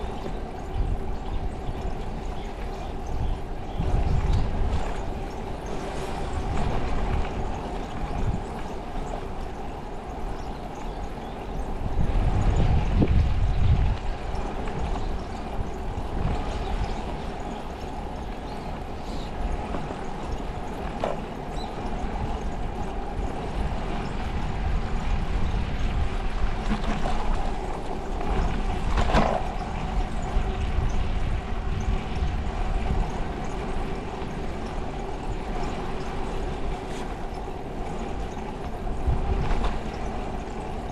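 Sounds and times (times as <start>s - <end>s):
bicycle road noise: 0.0s - 40.9s
wind rumbling over microphone: 0.0s - 40.9s.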